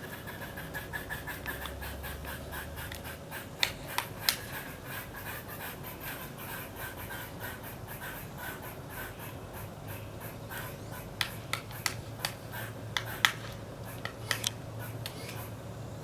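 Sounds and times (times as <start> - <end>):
woodpecker pecking wood: 0.0 - 7.2, 10.2 - 15.5.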